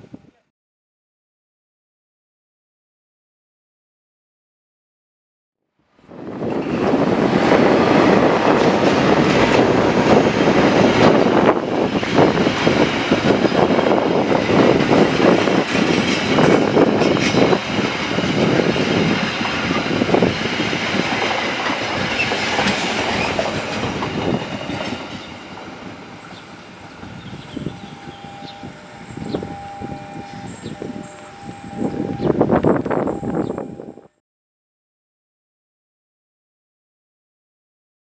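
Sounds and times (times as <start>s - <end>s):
train passing at speed: 5.9s - 34.1s
wheels clattering over rail joints: 6.4s - 32.8s.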